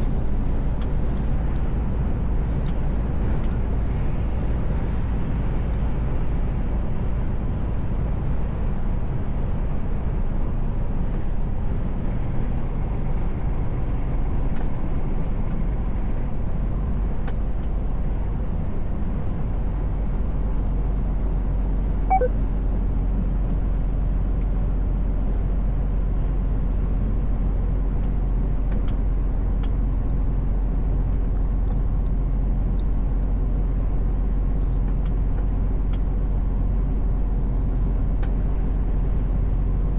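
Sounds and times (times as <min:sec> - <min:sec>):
truck engine and road drone: 0:00.0 - 0:39.9
brief beep: 0:22.1 - 0:22.4.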